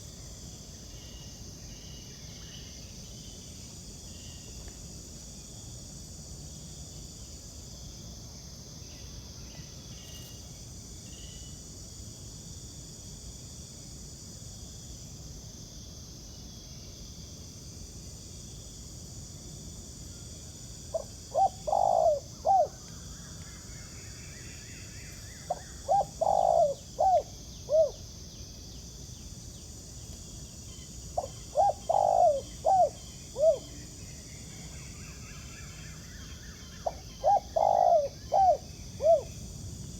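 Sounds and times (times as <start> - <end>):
insects chirring: 0.0 - 39.9
dove cooing: 20.9 - 22.8, 25.5 - 28.0, 31.2 - 33.7, 36.8 - 39.3.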